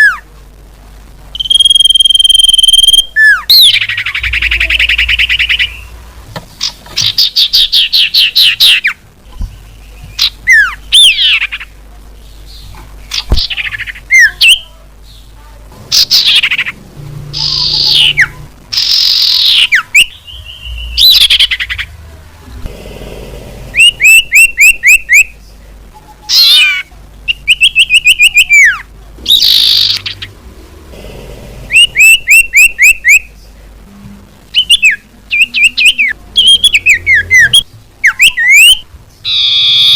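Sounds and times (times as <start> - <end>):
bird whistled calls: 1.4 - 5.9, 23.8 - 25.3, 31.7 - 33.3, 34.5 - 39.9.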